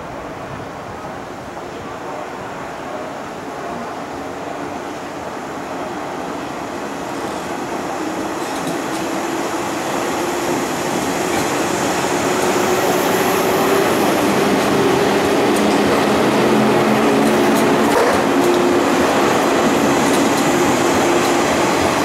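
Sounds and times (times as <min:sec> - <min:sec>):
electric train rolling past: 0:01.7 - 0:22.0
wheels clicking over rail joints: 0:08.4 - 0:09.1, 0:14.4 - 0:18.8.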